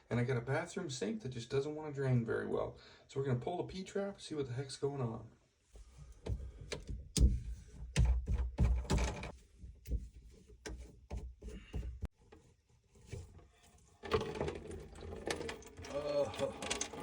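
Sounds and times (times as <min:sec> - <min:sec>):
knocks and clicks on drain pipe: 0:06.2 - 0:12.1.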